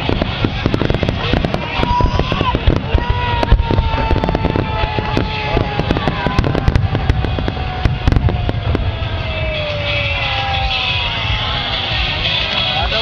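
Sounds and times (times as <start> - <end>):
low rumble: 0.0 - 12.7
fireworks crackling: 0.0 - 13.0.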